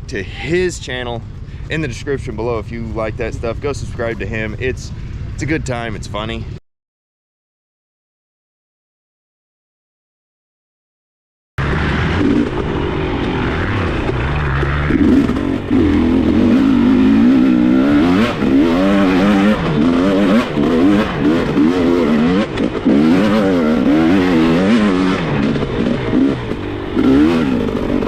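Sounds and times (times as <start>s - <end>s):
dirt bike engine revving: 11.6s - 28.0s.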